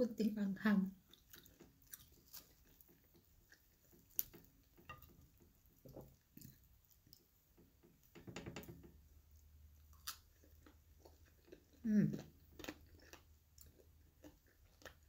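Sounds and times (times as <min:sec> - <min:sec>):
chewing with wet smacks: 0:01.0 - 0:07.3, 0:09.9 - 0:15.0.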